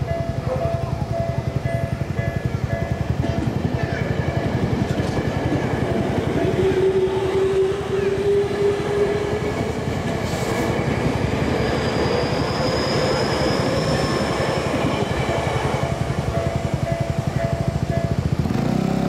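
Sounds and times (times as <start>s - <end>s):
crossing warning bell ringing: 0.0s - 10.1s, 10.7s - 18.9s
train wheels on rails: 0.0s - 19.0s
high thin wheel squeal: 6.4s - 15.8s.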